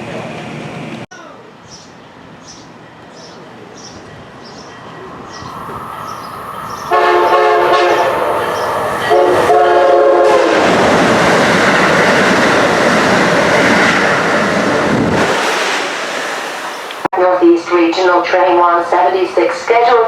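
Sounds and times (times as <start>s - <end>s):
train rushing past: 1.7s - 20.0s
rail clatter: 4.0s - 17.8s
train horn blasts: 6.9s - 10.5s.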